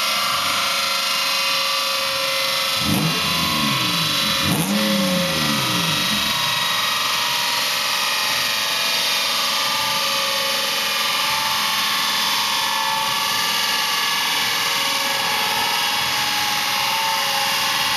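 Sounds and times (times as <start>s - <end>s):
car exhaust at steady revs: 2.0s - 8.6s.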